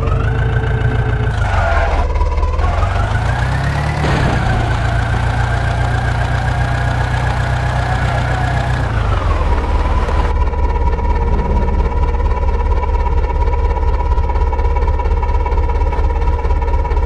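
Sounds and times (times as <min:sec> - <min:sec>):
diesel engine revving: 0:00.0 - 0:10.3.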